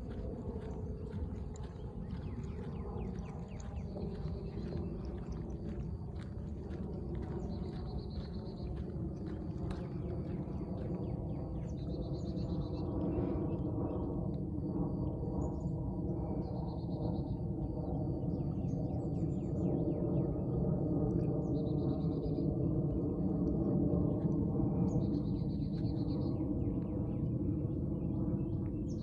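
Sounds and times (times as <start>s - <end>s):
songbirds trilling and chirping: 0.0s - 14.0s
steady low rumble: 0.0s - 29.0s.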